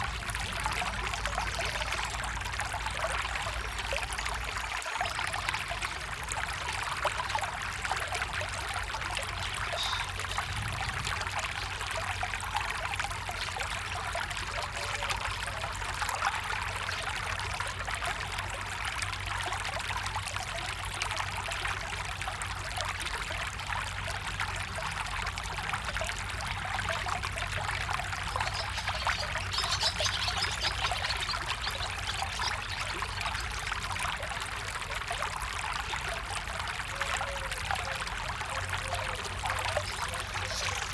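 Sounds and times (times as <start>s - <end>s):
small stream trickling: 0.0s - 40.9s.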